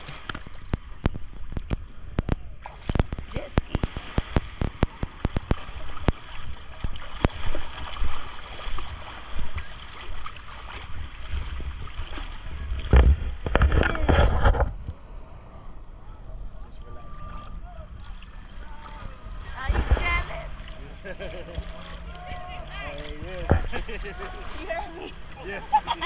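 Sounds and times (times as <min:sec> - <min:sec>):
water splashing and sloshing: 0:00.0 - 0:26.0
crackling clicks: 0:00.2 - 0:06.2.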